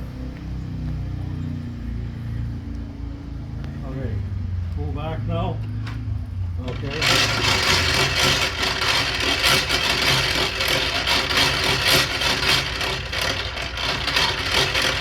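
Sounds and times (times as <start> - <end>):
loud clattering engine: 3.2 - 15.0.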